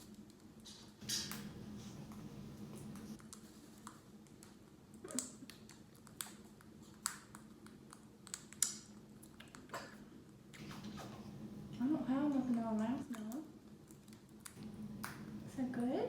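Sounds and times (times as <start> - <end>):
faint steady hum: 0.0 - 16.0
parrot beaks crunching bird food: 2.1 - 11.2, 12.3 - 15.3.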